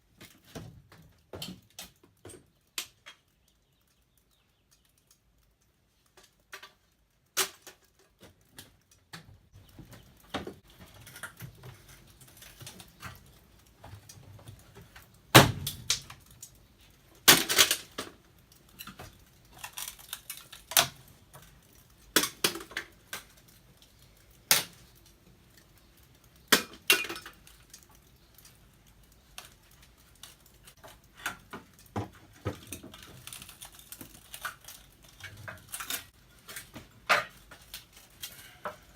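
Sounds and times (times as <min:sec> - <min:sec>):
metal and glass clattering: 0:26.6 - 0:27.5.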